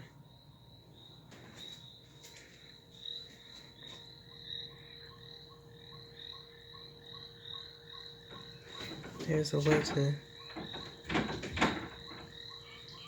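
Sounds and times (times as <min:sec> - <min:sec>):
crickets trilling: 0:00.0 - 0:13.0
frog chirps: 0:04.1 - 0:09.4.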